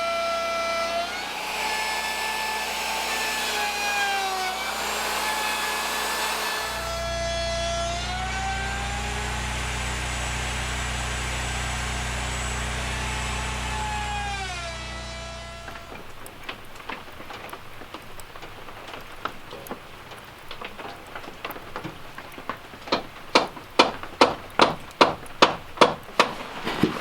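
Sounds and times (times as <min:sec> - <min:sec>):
blade rasping in wood: 0:00.0 - 0:09.0, 0:13.0 - 0:16.2
sawmill high whine: 0:00.0 - 0:16.2.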